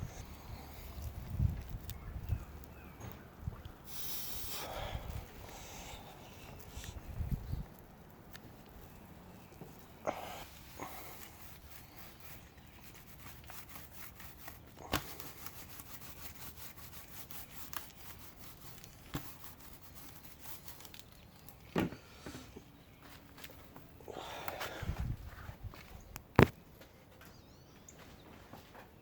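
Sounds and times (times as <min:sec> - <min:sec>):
rubbing and fine crackling: 0:00.0 - 0:21.7.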